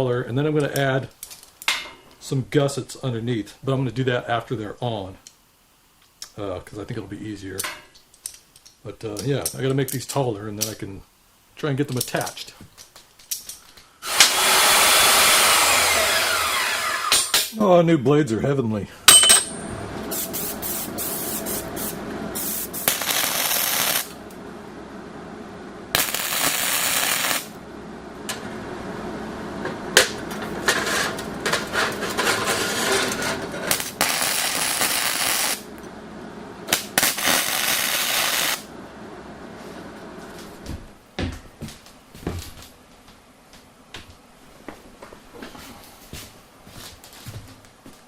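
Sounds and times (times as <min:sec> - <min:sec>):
power saw cutting steel: 0:14.0 - 0:17.5, 0:30.3 - 0:35.6.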